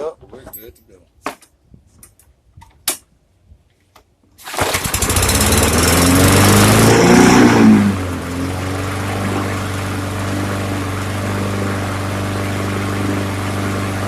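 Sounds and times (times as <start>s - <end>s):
lawn mower engine running: 4.4s - 14.0s.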